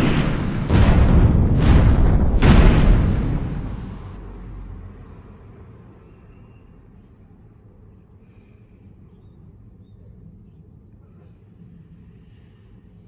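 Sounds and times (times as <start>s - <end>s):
low outdoor rumble: 0.0s - 13.0s
bird chirping: 5.9s - 13.0s.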